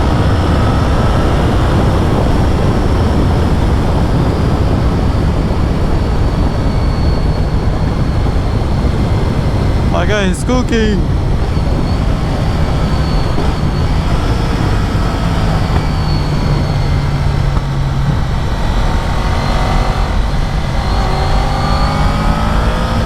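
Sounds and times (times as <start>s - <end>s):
heavy wind noise: 0.0s - 23.0s
motorcycle engine running: 11.0s - 22.0s.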